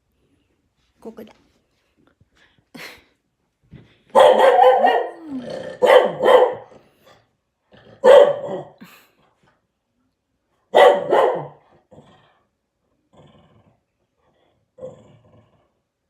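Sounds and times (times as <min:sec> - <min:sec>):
dog barking: 0:04.1 - 0:06.8, 0:08.0 - 0:08.8, 0:10.7 - 0:11.6.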